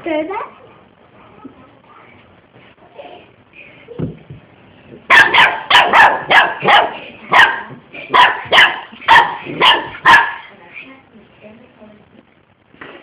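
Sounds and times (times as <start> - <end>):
dog barking: 5.1 - 10.5.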